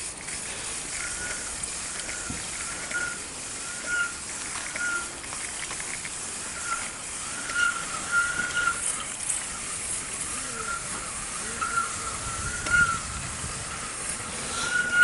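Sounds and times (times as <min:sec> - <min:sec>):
bicycle tyres on snowy road: 0:00.0 - 0:15.0
wind hiss: 0:00.0 - 0:15.0
short high squeak: 0:02.1 - 0:05.2, 0:06.6 - 0:08.9, 0:11.6 - 0:13.0, 0:14.6 - 0:15.0.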